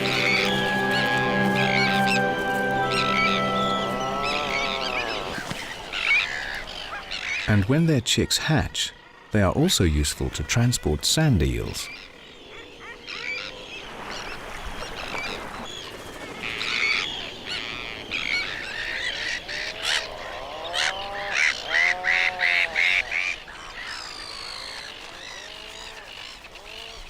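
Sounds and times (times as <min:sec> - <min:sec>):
honking seabird calls: 0:00.0 - 0:07.6.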